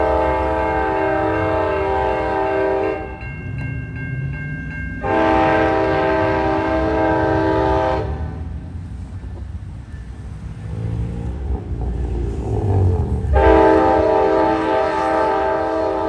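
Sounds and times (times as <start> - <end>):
locomotive air horn blasts: 0.0 - 3.2, 5.0 - 8.4, 13.2 - 16.0
train rumble: 0.0 - 16.0.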